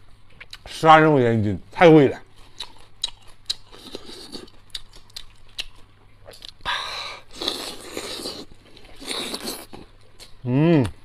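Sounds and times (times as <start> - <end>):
person chewing: 2.3 - 11.0.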